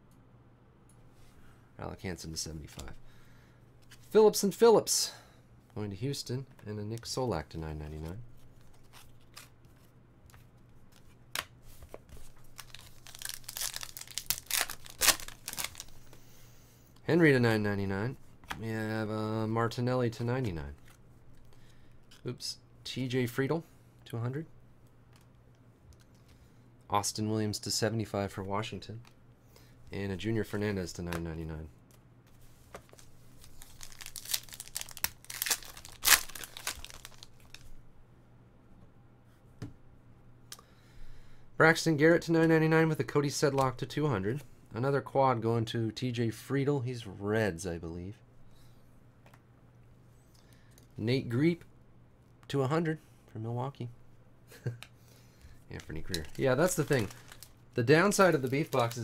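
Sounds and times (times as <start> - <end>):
plastic wrapping crinkling: 12.2 - 16.1, 32.8 - 37.8, 55.7 - 59.0.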